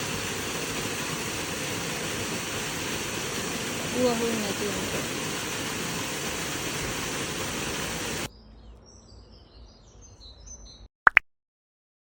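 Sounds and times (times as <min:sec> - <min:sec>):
loud rushing noise: 0:00.0 - 0:08.3
faint birds chirping: 0:08.0 - 0:10.9.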